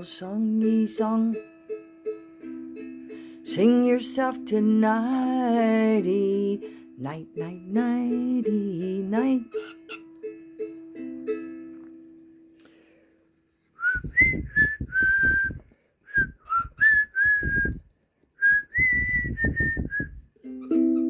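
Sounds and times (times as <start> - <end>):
person whistling a tune: 13.8 - 20.3.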